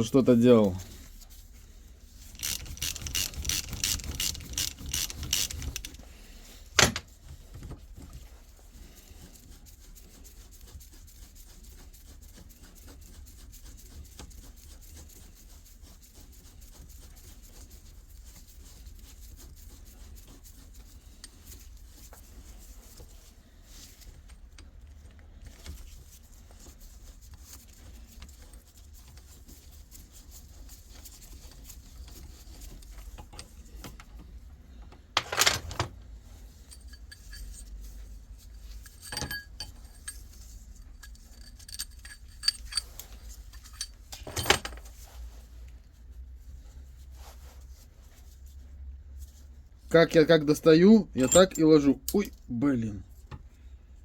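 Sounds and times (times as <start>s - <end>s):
faint scraping and handling: 0.0s - 54.0s
rapid metallic clicking rattle: 2.3s - 6.1s.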